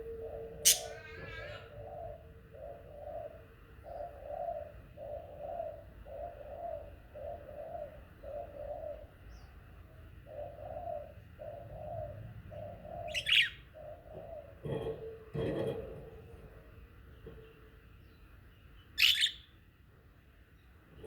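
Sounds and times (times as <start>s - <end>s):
high falling bird chirp: 0.0s - 4.2s, 18.1s - 19.5s
dove cooing: 0.0s - 17.7s.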